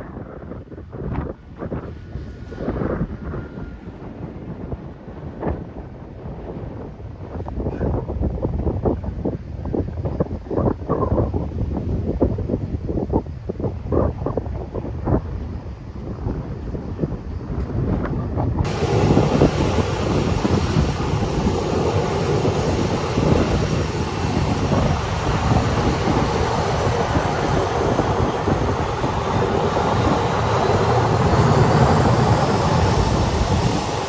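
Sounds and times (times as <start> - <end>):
wind buffeting microphone: 0.0 - 34.0
aircraft engines roaring: 18.6 - 34.0
high whine: 18.7 - 34.0.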